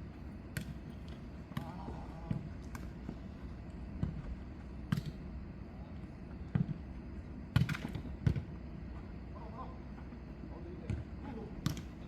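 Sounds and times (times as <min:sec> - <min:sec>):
ball kicked and bouncing: 0:03.9 - 0:05.2, 0:06.4 - 0:06.8, 0:07.5 - 0:08.5, 0:10.8 - 0:12.0.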